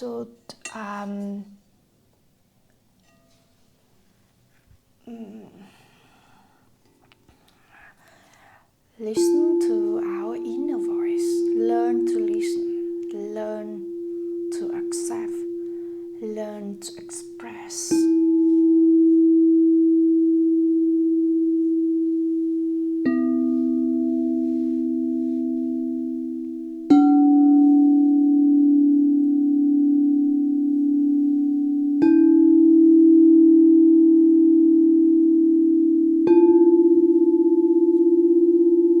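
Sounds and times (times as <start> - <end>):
singing bowls ringing: 9.2 - 39.0.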